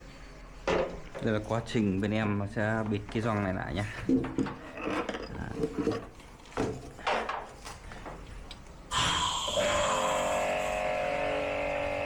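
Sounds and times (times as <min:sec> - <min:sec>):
washing machine running with whine: 0:08.9 - 0:12.0.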